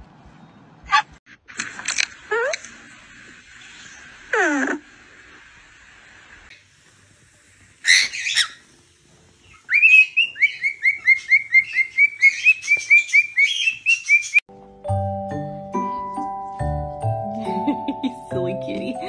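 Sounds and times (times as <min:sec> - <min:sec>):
harsh bird squawk: 0:07.8 - 0:08.7
small bird chirping rapidly: 0:09.5 - 0:14.4.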